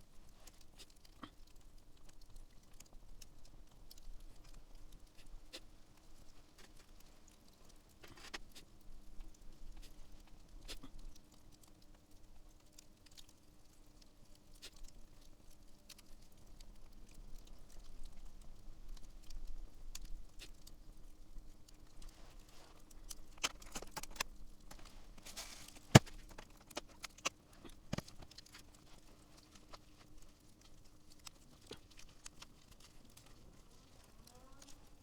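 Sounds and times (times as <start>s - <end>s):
campfire crackling: 0.0s - 34.4s
fire popping: 0.1s - 34.1s.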